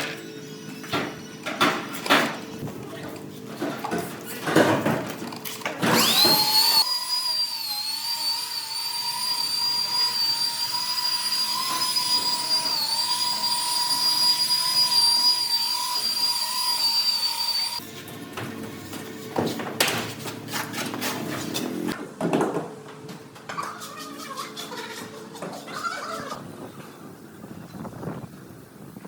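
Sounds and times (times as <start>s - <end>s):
power tool motor whining: 5.8s - 17.8s.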